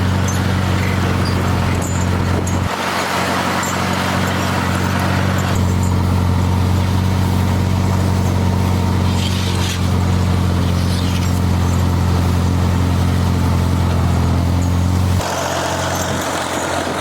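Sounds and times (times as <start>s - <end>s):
tractor engine droning: 0.0s - 17.0s.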